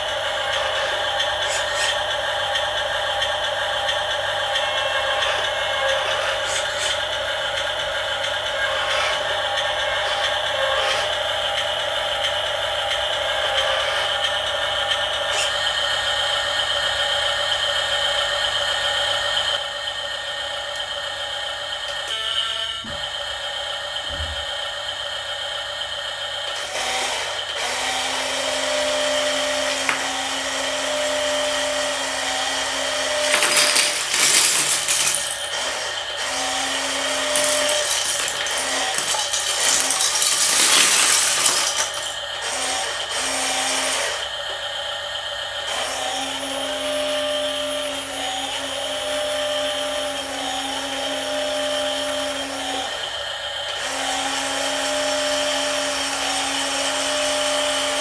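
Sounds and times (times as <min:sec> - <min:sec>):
loud rasping: 0:00.0 - 0:02.6, 0:04.5 - 0:11.6, 0:28.9 - 0:44.2
toy truck electric motors whirring: 0:00.0 - 0:58.0.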